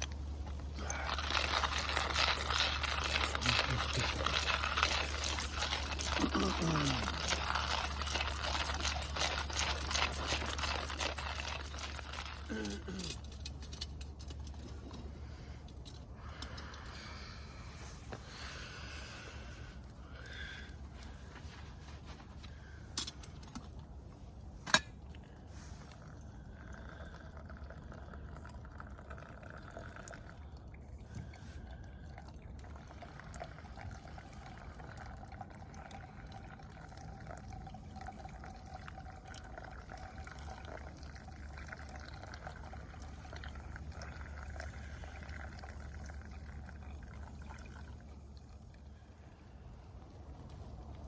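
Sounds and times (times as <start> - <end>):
water pouring: 0.0 - 14.7, 25.7 - 51.0.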